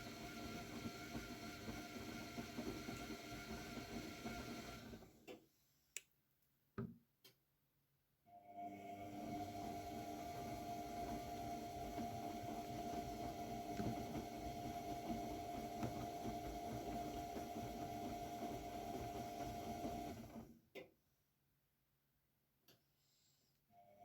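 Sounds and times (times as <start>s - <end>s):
washing machine motor whining: 0.0s - 5.4s, 8.6s - 20.5s.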